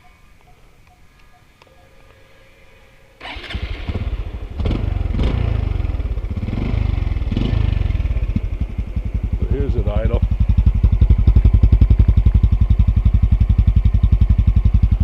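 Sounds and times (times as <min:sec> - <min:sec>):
motorcycle engine starting: 0:03.2 - 0:15.0.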